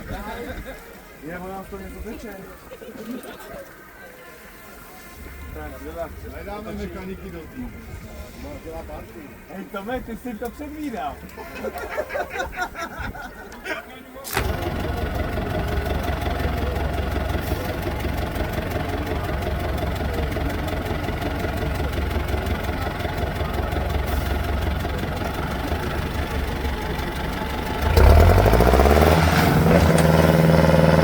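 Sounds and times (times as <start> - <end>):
diesel engine idling and revving: 14.3 - 31.0.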